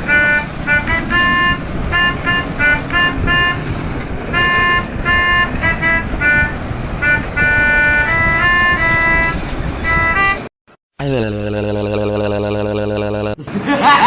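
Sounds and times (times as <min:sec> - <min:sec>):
low rumble of engines and traffic: 0:00.0 - 0:10.5
musical truck horn playing tune: 0:00.0 - 0:10.5.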